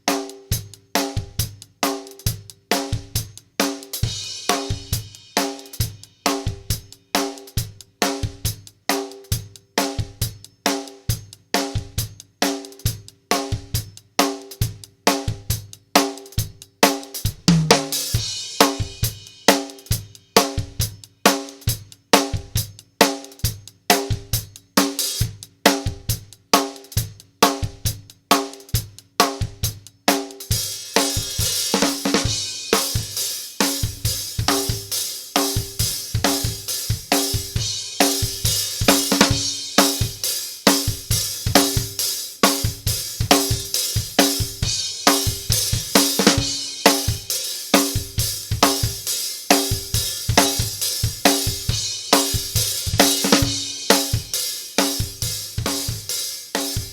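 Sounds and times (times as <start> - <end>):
drum kit beat: 0.0 - 56.9
cymbals: 30.5 - 56.9.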